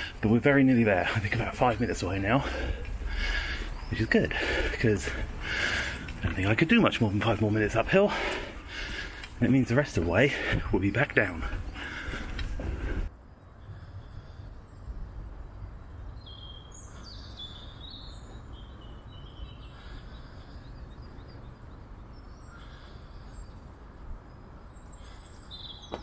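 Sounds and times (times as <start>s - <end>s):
steady low rumble: 0.0s - 16.2s
songbirds chirping: 0.0s - 26.0s.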